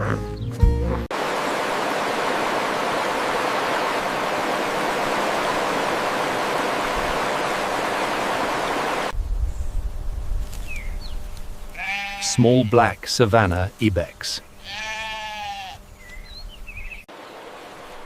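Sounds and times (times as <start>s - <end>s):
steady rushing noise: 1.1s - 9.4s.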